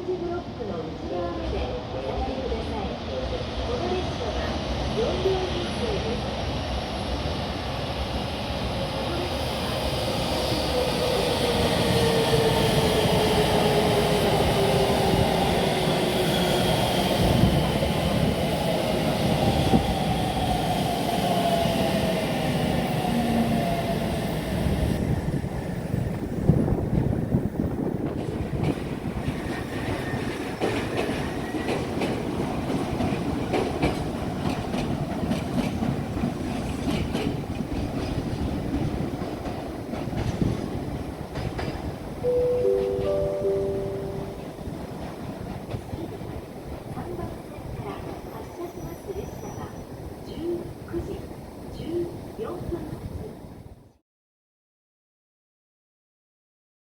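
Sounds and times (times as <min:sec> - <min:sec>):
train rumble: 0:00.0 - 0:53.8
wheels clicking over rail joints: 0:28.0 - 0:42.1.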